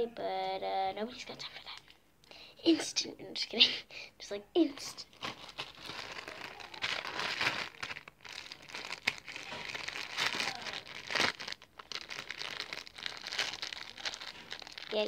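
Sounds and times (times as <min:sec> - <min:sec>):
slime crackling: 0:05.0 - 0:15.0.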